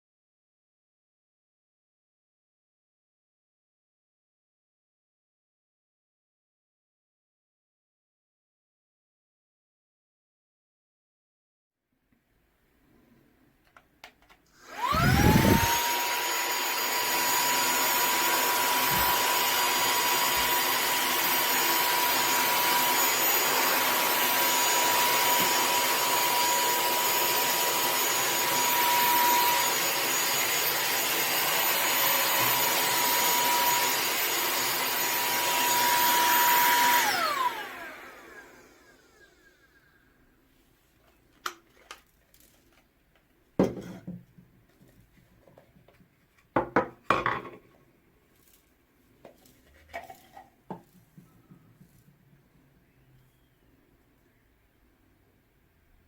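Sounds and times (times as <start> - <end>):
handheld vacuum whining: 14.6 - 40.0.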